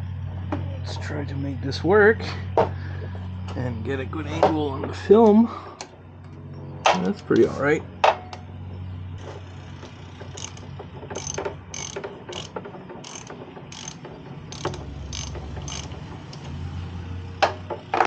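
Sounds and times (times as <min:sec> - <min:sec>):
hand ratchet clicking: 0:10.2 - 0:16.5.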